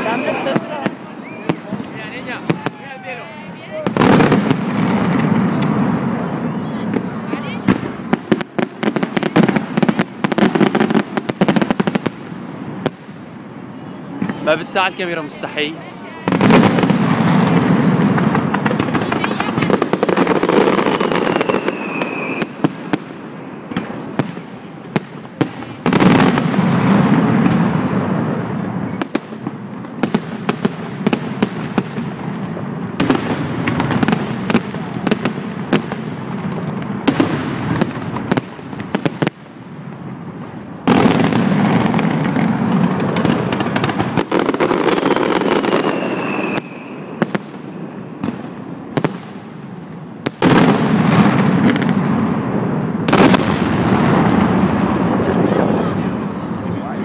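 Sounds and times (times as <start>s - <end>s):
fireworks crackling and banging: 0.0s - 57.0s
falling firework whistle: 1.0s - 3.2s, 20.6s - 22.9s, 45.0s - 47.7s.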